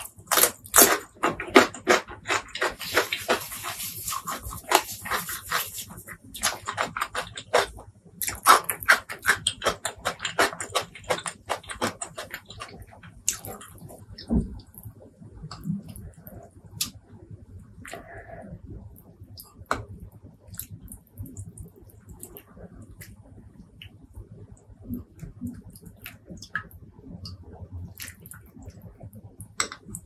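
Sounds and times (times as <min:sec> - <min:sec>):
wet chewing: 0:00.0 - 0:17.0, 0:24.8 - 0:30.0.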